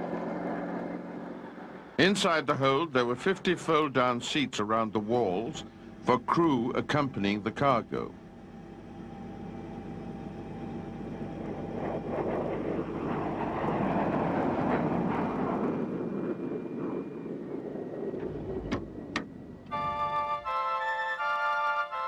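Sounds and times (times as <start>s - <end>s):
aircraft engine and rotor drone: 0.0s - 22.0s.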